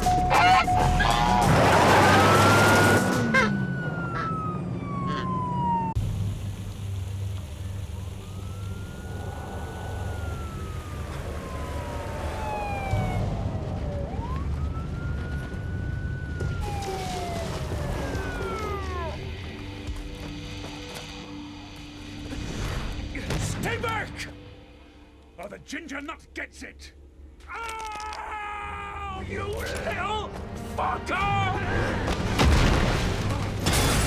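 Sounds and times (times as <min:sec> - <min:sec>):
police siren wailing: 0:00.0 - 0:06.0, 0:07.4 - 0:20.1
car engine drone: 0:00.0 - 0:22.5.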